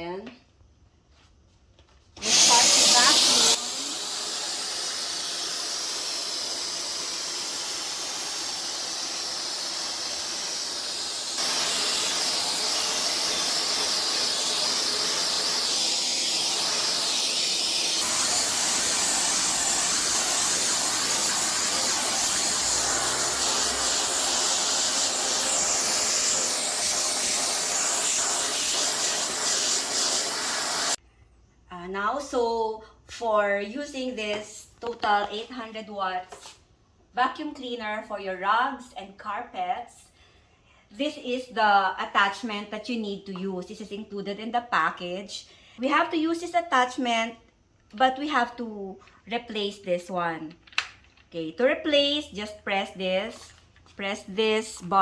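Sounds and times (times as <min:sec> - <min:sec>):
vacuum cleaner running: 0:02.2 - 0:31.0.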